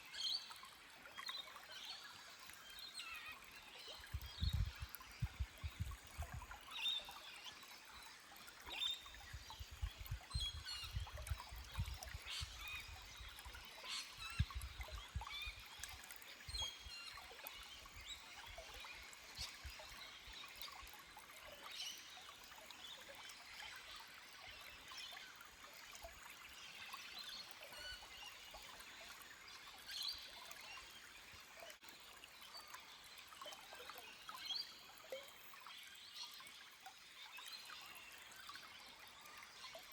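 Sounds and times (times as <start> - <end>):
stream trickling over rocks: 0.0 - 39.9.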